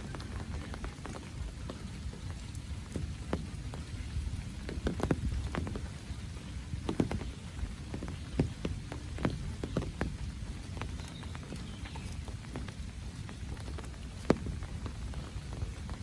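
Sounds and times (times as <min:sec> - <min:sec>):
large raindrops tapping: 0:00.0 - 0:16.0
rain falling: 0:00.0 - 0:16.0.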